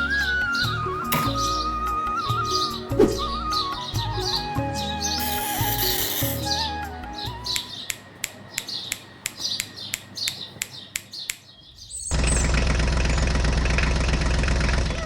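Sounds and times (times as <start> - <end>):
birds chirping: 0.0 - 13.3
loud steady engine: 12.1 - 15.0.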